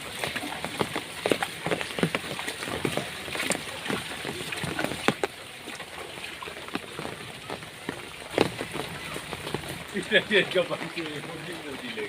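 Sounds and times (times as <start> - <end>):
rain splashing into floodwater: 0.0 - 12.0.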